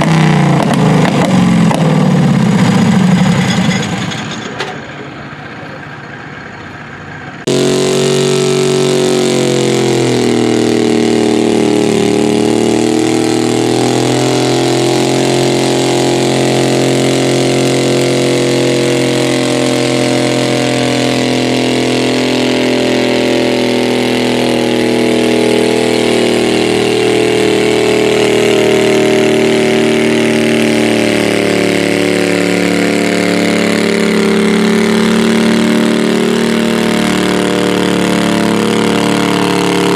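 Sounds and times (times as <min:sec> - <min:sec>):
tractor engine at high revs: 0:00.0 - 0:39.9.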